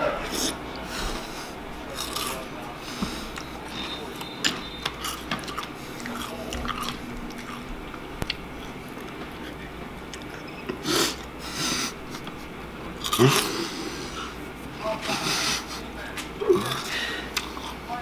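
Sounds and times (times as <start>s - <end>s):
crunchy cereal being chewed: 4.9s - 10.4s.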